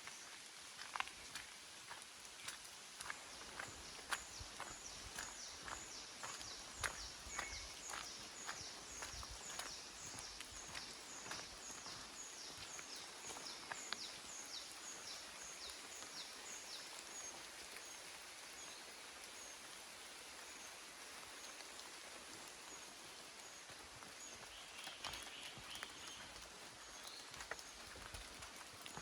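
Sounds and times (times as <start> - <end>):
soft footsteps on track: 0.0 - 16.3, 21.8 - 29.0.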